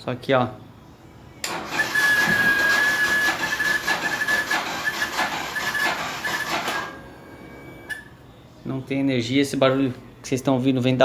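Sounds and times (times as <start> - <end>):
fuel pump whining and chattering: 1.4 - 7.1.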